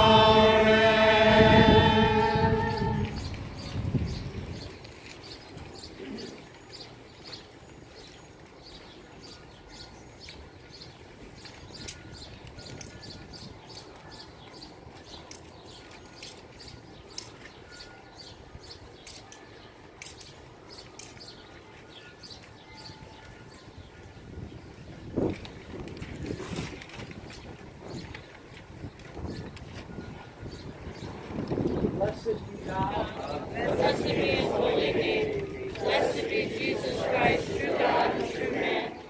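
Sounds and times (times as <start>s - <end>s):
low street noise rumble: 0.0s - 39.0s
small birds chirping: 2.7s - 24.0s.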